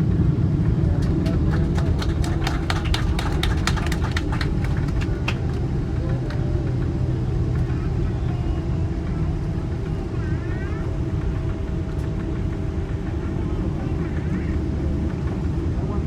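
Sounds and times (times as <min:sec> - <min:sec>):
airliner cabin rumble: 0:00.0 - 0:16.0.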